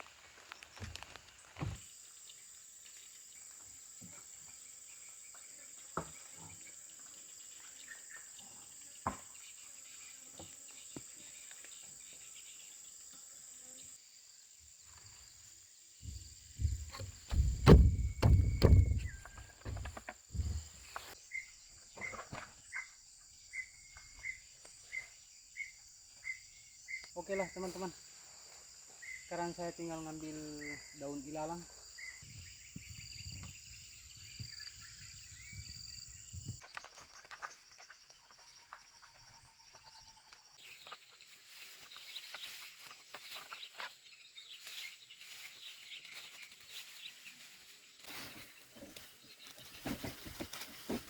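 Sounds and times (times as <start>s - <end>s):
insects droning: 0.0s - 51.0s
small knocks: 16.0s - 20.8s
thumping and rustling handling noise: 16.0s - 21.2s, 49.6s - 51.0s.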